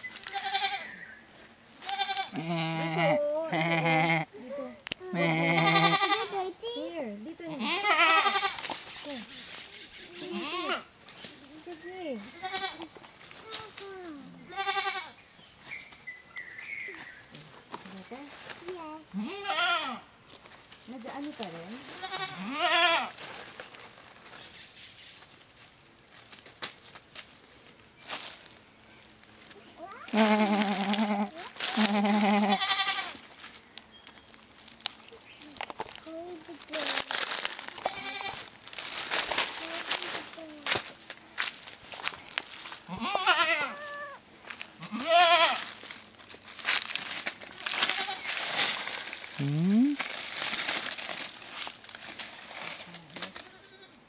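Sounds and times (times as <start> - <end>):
goat bleating: 0.2 - 1.0, 1.8 - 4.4, 5.0 - 6.6, 7.4 - 8.7, 9.8 - 10.9, 12.3 - 12.9, 14.5 - 15.2, 19.1 - 20.1, 22.0 - 23.2, 30.1 - 33.2, 37.8 - 38.5, 42.9 - 45.7, 47.7 - 48.3, 53.2 - 54.0.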